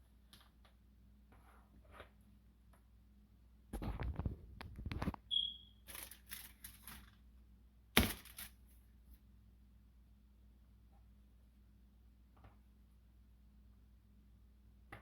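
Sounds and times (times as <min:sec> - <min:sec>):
short high squeak: 0:05.3 - 0:05.8.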